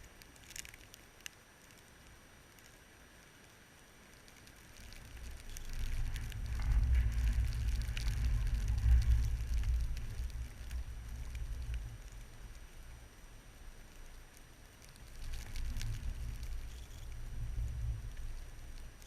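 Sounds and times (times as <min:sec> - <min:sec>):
light ticks: 0:00.0 - 0:19.0
wind buffeting microphone: 0:05.1 - 0:13.0, 0:15.1 - 0:19.0.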